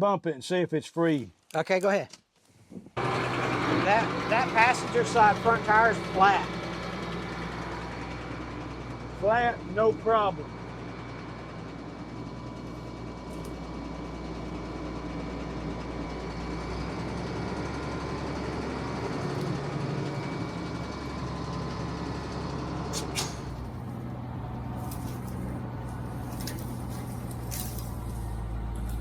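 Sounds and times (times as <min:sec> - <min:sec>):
truck engine idling: 0:03.0 - 0:29.0
sharp metallic clank: 0:22.9 - 0:23.7.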